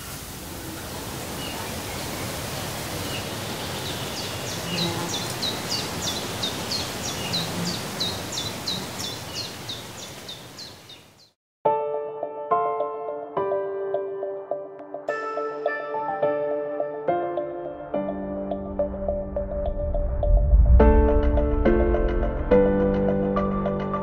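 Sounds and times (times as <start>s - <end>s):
steady outdoor hiss: 0.0s - 11.3s.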